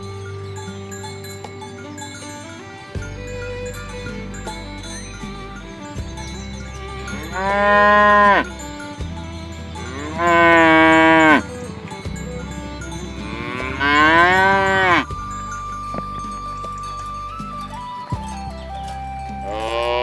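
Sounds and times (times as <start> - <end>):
cow mooing: 7.0 - 8.7, 9.8 - 15.1, 19.5 - 20.0.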